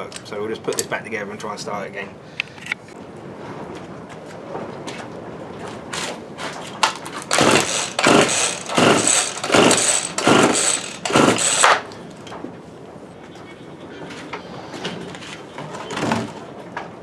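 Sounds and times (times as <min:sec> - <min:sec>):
chainsaw recoil starter cranking: 0:06.8 - 0:12.0.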